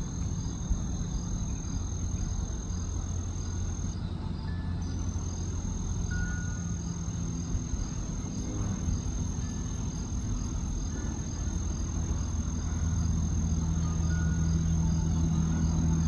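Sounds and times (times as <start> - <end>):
crickets chirping: 0.0 - 16.0
high insect whine: 0.0 - 16.0
low engine hum: 0.0 - 16.0.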